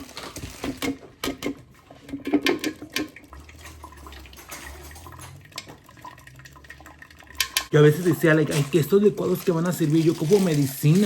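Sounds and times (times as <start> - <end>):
liquid pouring through a strainer: 1.8 - 11.0
spoon clinking against strainer: 2.5 - 5.8.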